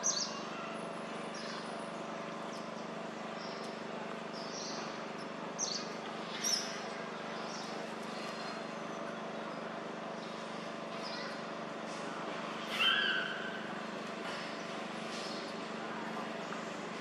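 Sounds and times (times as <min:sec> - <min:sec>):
low outdoor hum: 0:00.0 - 0:17.0.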